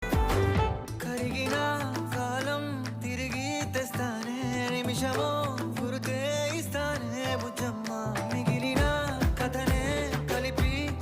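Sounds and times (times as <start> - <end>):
steady drum beat: 0.0 - 1.0, 8.8 - 11.0
song with sung melody: 0.0 - 11.0.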